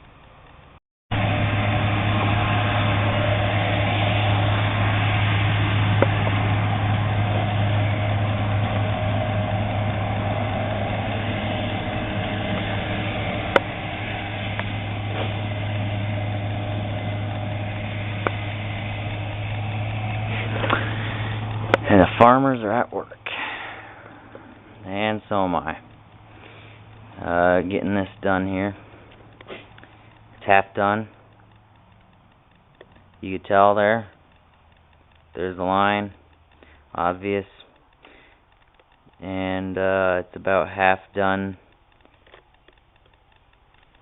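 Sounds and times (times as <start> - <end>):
machine humming: 0.0 - 33.2
sharp clicks: 23.1 - 39.3, 41.5 - 44.0.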